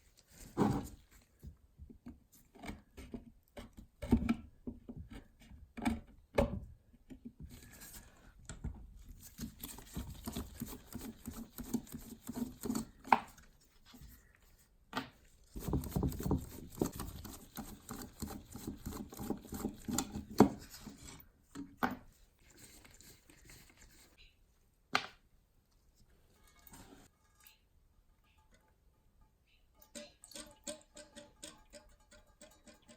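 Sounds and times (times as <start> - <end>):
tool scraping and rubbing: 9.1 - 14.2, 15.4 - 21.3.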